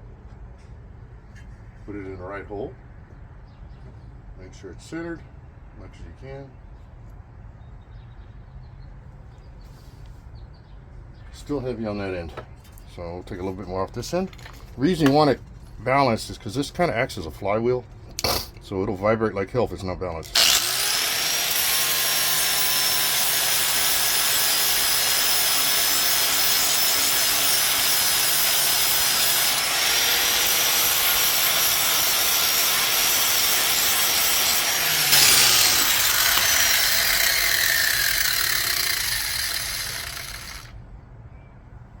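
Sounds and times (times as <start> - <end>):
angle grinder grinding steel: 20.2 - 40.7
grinder disc spinning down: 20.2 - 40.7.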